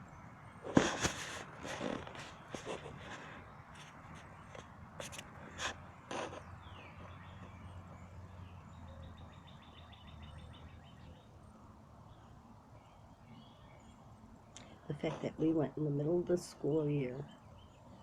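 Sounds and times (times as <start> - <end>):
birds calling: 0.0 - 18.0
low hum of road traffic: 0.0 - 18.0.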